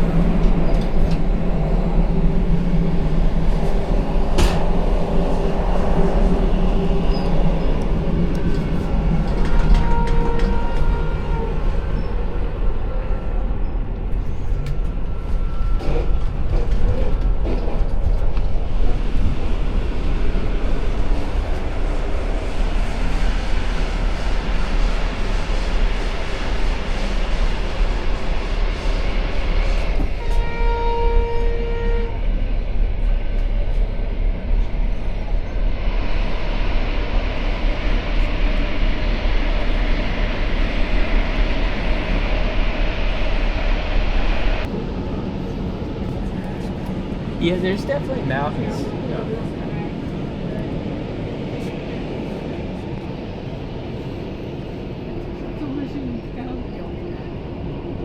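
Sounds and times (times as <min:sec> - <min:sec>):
passenger train rumbling on track: 0:00.0 - 0:58.0.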